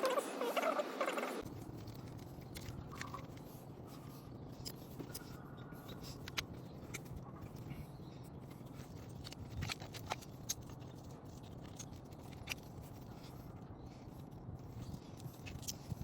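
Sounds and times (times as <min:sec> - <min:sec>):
light clicks and scrapes of handwork: 0:01.4 - 0:16.0.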